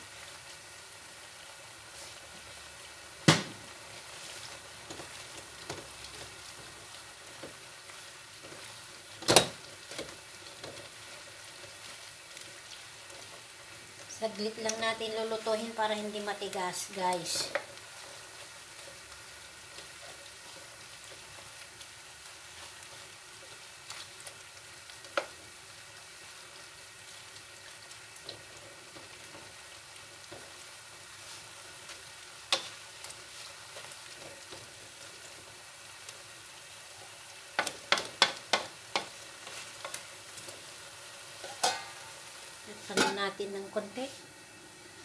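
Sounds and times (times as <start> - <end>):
food sizzling in a wok: 0.0 - 45.0.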